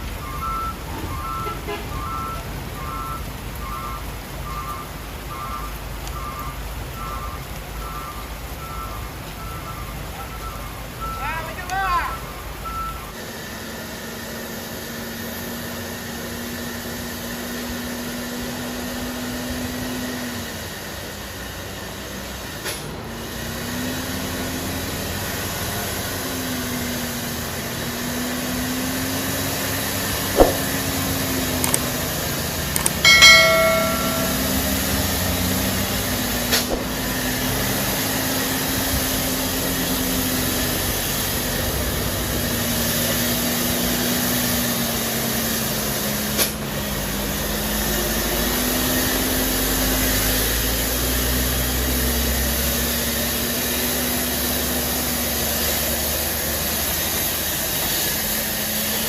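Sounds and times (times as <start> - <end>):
truck diesel engine droning: 0.0 - 59.0
brief higher tone: 33.1 - 35.1.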